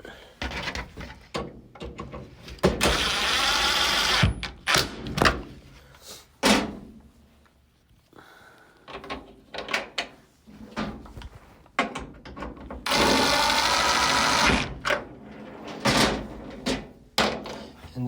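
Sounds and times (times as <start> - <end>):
power drill driving a screw: 2.8 - 4.9, 12.9 - 14.7.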